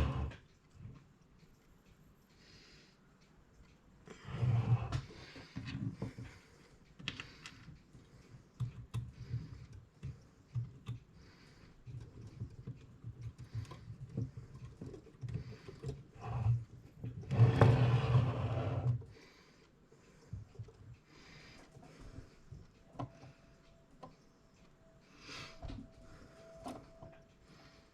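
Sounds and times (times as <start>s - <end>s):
small clicks and taps of tools: 4.9s - 17.3s, 18.9s - 24.8s.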